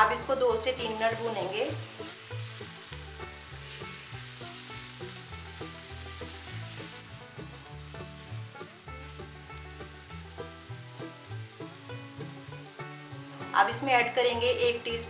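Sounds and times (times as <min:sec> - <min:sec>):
chicken sizzling in a frying pan: 0:00.0 - 0:15.0
soft background music: 0:00.0 - 0:15.0.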